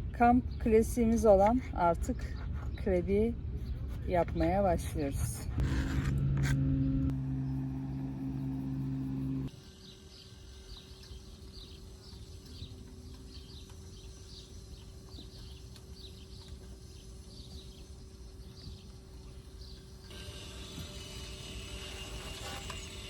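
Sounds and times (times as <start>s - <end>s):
low outdoor rumble: 0.0s - 9.5s
faint steady hum: 3.1s - 23.0s.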